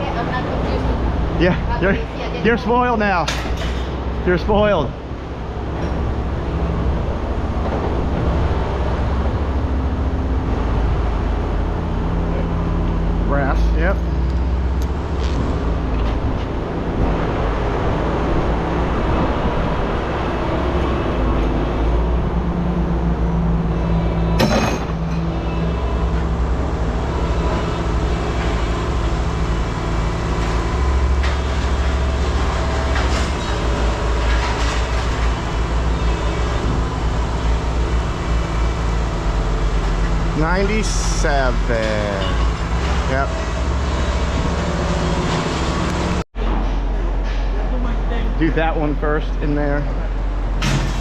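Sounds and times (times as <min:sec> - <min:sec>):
heavy machinery engine rumble: 0:00.0 - 0:51.0.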